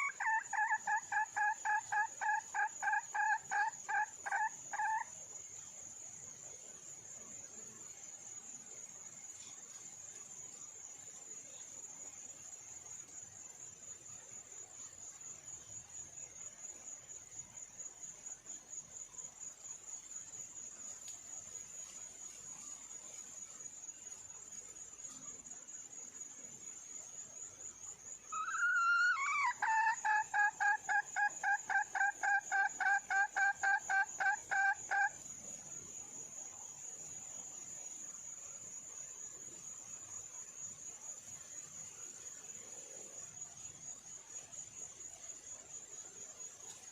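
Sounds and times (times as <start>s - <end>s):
hen clucking rapidly: 0.0s - 5.0s, 28.4s - 35.1s
high pulsing insect trill: 0.0s - 46.9s.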